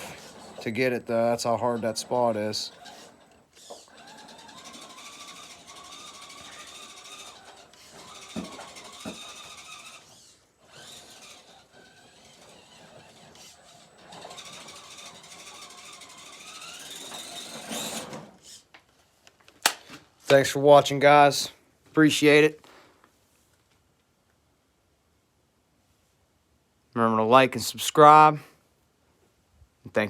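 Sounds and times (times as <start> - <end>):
electric motor and gears whining: 0.0 - 18.6.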